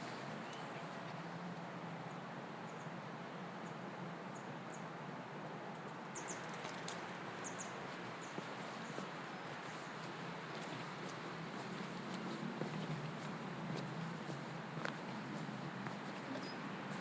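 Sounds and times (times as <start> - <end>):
small birds chirping: 0.0 - 1.2, 6.1 - 17.0
outdoor background hum: 0.0 - 17.0.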